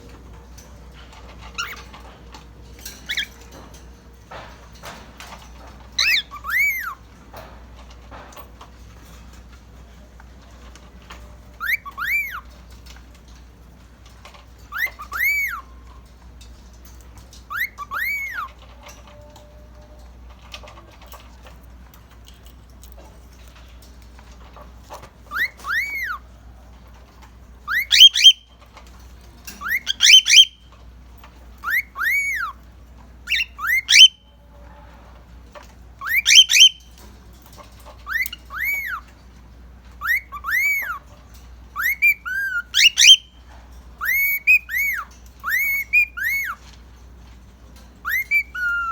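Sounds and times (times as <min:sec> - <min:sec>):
cockatiel whistling: 0:06.0 - 0:07.0, 0:11.6 - 0:12.4, 0:14.7 - 0:15.6, 0:17.5 - 0:18.5, 0:25.3 - 0:26.2, 0:27.7 - 0:28.4, 0:29.6 - 0:30.6, 0:31.6 - 0:32.6, 0:33.3 - 0:34.2, 0:36.0 - 0:36.8, 0:38.1 - 0:39.0, 0:40.0 - 0:41.0, 0:41.8 - 0:43.3, 0:44.0 - 0:46.6, 0:48.0 - 0:48.9.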